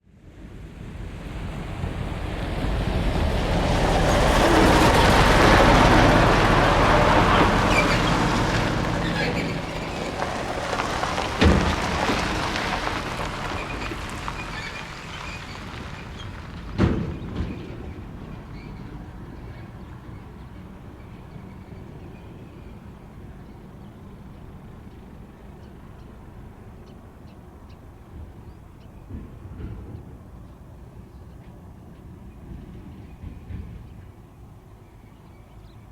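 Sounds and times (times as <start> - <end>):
diesel locomotive engine rumble: 0.1 - 35.9
sharp knocks: 8.2 - 14.2.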